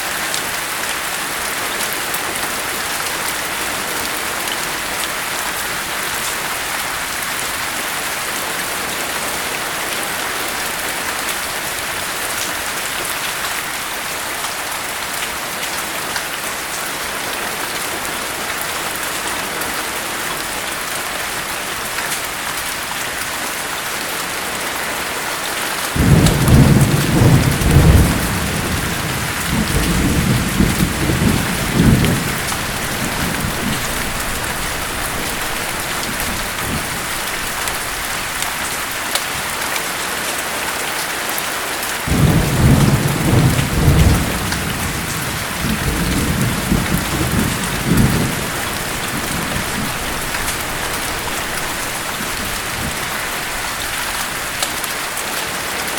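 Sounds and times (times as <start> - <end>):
steady rain: 0.0 - 55.9
thunder rumbling: 26.0 - 37.9, 42.1 - 54.0.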